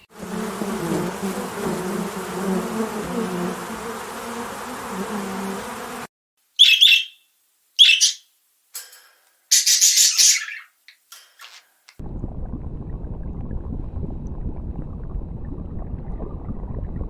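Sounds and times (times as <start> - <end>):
insect buzzing: 0.0 - 6.1
bird chirping: 6.6 - 8.3, 9.5 - 11.7.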